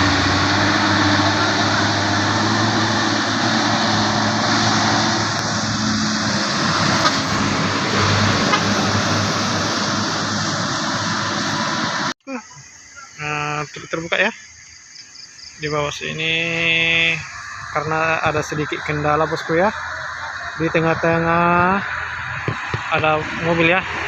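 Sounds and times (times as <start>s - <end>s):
truck engine running: 0.0s - 12.2s, 15.9s - 24.0s
road noise: 0.0s - 24.0s.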